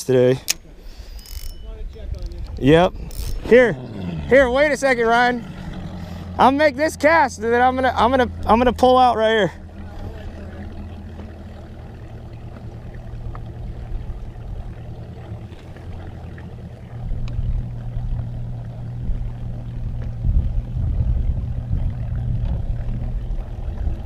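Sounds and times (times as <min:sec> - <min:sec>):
outboard motor running: 0:00.0 - 0:24.0.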